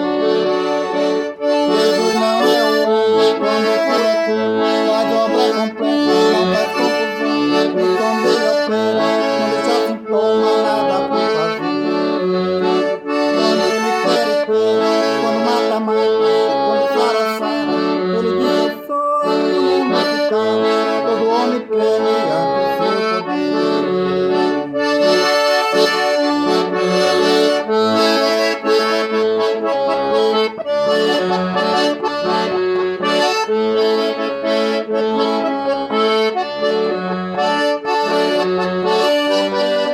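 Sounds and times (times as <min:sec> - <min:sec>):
accordion playing: 0:00.0 - 0:39.9.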